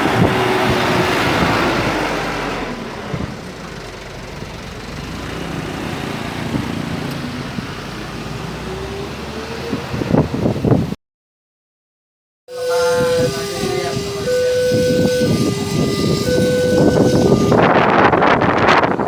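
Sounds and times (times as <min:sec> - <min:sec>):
wind on microphone: 0:00.0 - 0:03.4, 0:08.7 - 0:11.0, 0:12.6 - 0:19.0
vehicle engines idling: 0:00.0 - 0:09.2, 0:12.5 - 0:19.0
train passing: 0:12.5 - 0:19.0.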